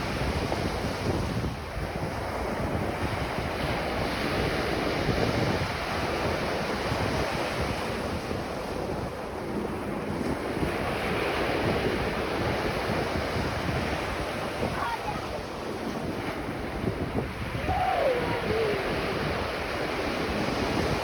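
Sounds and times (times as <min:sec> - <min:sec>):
wind rumbling on microphone: 0:00.0 - 0:21.0
surf breaking on beach: 0:10.1 - 0:21.0.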